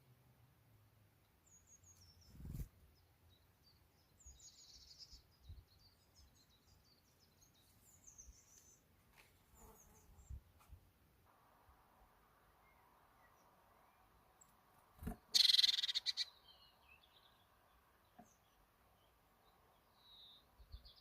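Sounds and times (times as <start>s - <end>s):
high-pitched bird chirps: 15.3s - 16.7s.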